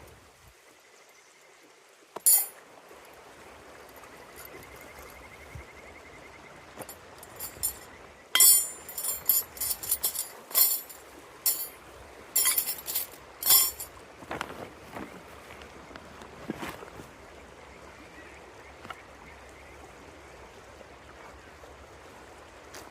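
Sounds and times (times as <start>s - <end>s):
hard objects clinking and knocking: 2.2s - 2.5s, 6.8s - 7.8s, 8.4s - 11.7s, 12.4s - 13.9s
river rushing: 6.8s - 14.1s.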